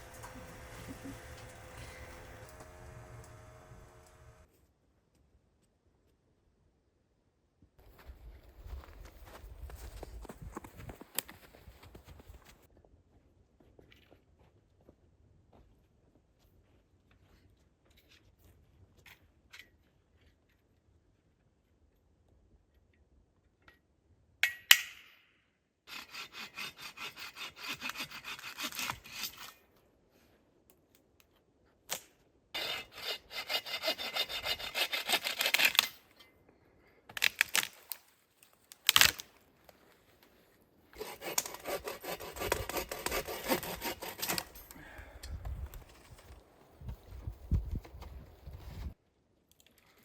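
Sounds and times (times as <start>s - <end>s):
bow saw cutting wood: 0.0s - 4.5s, 25.9s - 29.6s, 32.6s - 35.9s, 41.0s - 44.6s.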